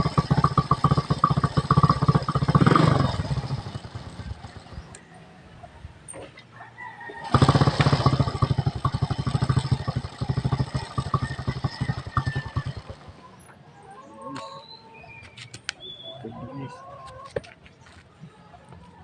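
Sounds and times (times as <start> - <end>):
motorcycle engine running: 0.0 - 5.1, 7.2 - 13.4.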